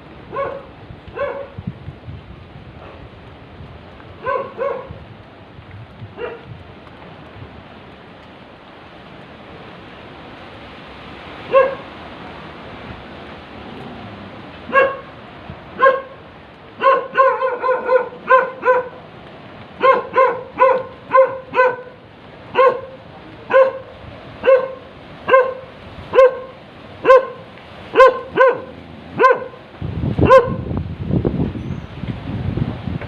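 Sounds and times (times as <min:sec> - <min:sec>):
dog barking: 0:00.3 - 0:01.6, 0:04.2 - 0:05.0, 0:06.2 - 0:06.5, 0:11.5 - 0:11.9, 0:14.7 - 0:15.2, 0:15.8 - 0:16.2, 0:16.8 - 0:19.0, 0:19.8 - 0:29.6, 0:30.2 - 0:30.6
low rumbling noise: 0:11.2 - 0:16.8.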